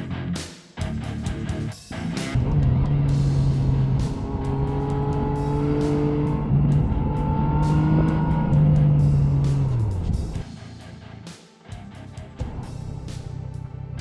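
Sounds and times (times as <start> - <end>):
motorcycle engine cruising: 2.3 - 10.4.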